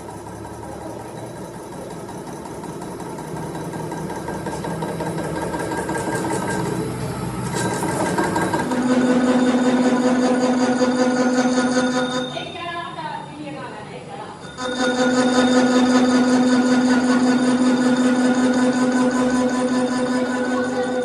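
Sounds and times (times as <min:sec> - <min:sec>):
workshop machine running: 0:00.0 - 0:21.0
strong steady hum: 0:04.6 - 0:21.0.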